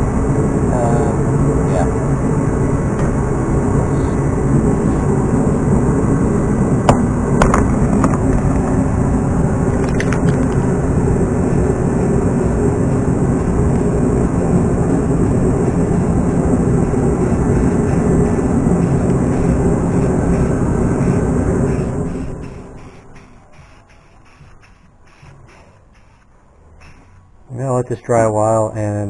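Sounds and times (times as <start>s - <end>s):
loud rumbling noise: 0.0s - 28.9s
sharp clicks: 9.7s - 10.6s.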